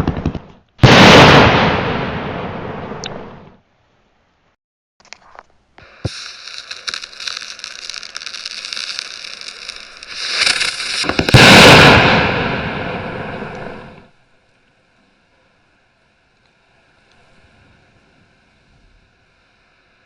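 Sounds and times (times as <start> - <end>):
firework crack: 0.0 - 3.2, 5.8 - 14.2
loud rushing firework burst: 0.8 - 3.1, 5.8 - 14.2
fireworks hissing and crackling: 5.7 - 14.2.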